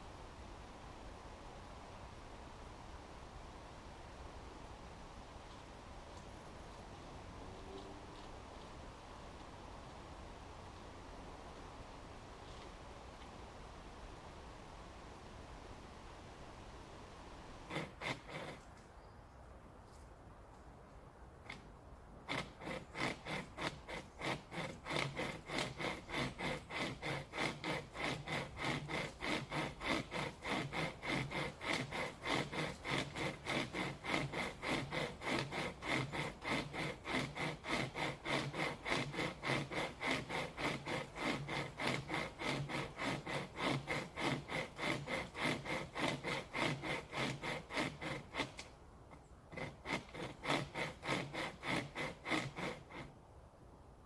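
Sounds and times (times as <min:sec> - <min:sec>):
chain saw rasping through wood: 0:17.6 - 0:18.8, 0:21.5 - 0:53.1.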